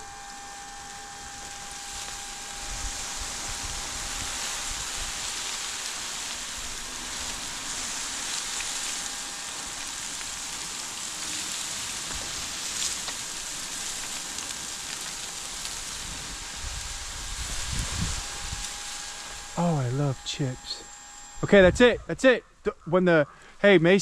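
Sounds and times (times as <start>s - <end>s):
wood chips pouring: 0.3s - 20.1s
wood chips landing ticks: 5.3s - 16.6s.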